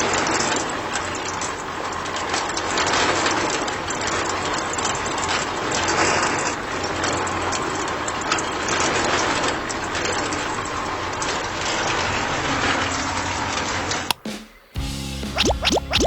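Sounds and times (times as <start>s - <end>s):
gears clicking rattle: 0.0s - 13.0s.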